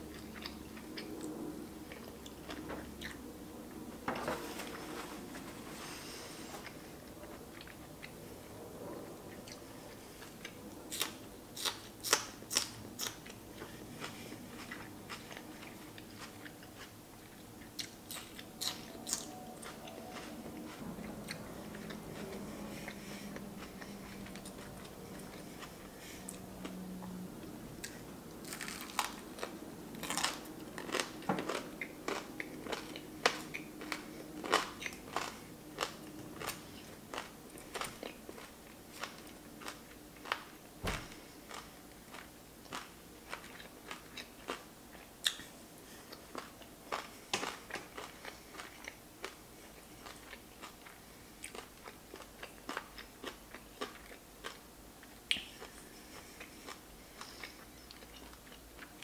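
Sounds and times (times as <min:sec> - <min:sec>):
person chewing food: 0:00.0 - 0:03.2, 0:05.7 - 0:08.2, 0:09.0 - 0:59.0
crisp crunches: 0:28.4 - 0:36.6.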